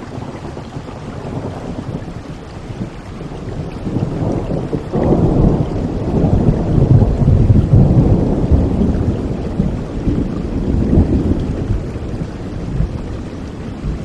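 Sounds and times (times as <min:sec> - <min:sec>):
steady rain: 0:00.0 - 0:14.0
thunder rumbling: 0:00.0 - 0:14.0.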